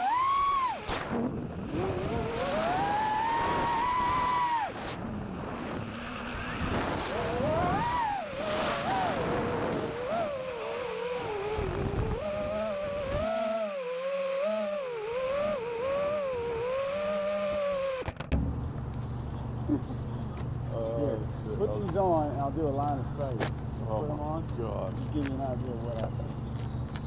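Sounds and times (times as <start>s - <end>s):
quadcopter motors whining: 0.0s - 18.2s.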